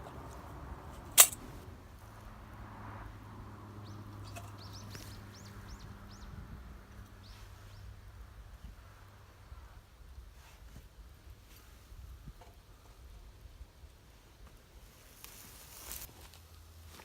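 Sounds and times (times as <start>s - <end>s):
sharp crack: 0.9s - 1.6s
bird chirping: 3.8s - 6.4s.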